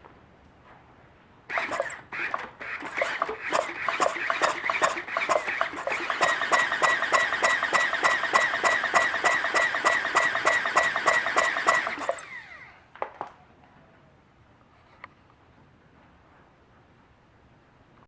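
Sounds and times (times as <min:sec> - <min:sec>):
electric starter motor cranking: 0:01.5 - 0:12.7.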